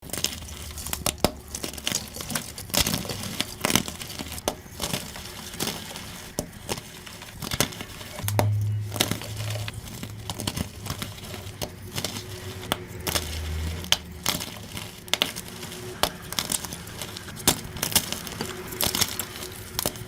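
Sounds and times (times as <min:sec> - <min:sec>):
chalk being crushed: 0:00.0 - 0:08.3, 0:08.9 - 0:20.0.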